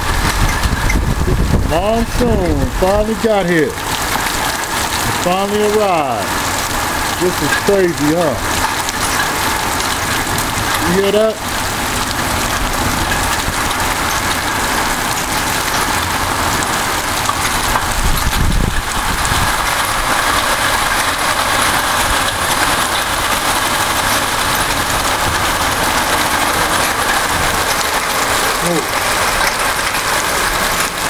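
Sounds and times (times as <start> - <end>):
wind buffeting microphone: 0.0 - 5.0, 11.4 - 30.8
heavy rain pouring: 0.0 - 31.0.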